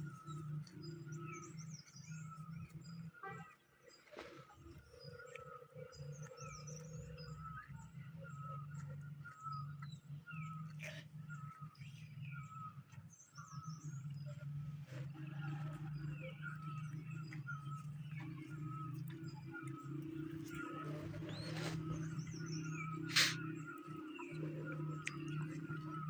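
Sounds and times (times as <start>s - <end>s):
birds chirping: 0.0s - 26.0s
steady low hum: 4.8s - 26.0s.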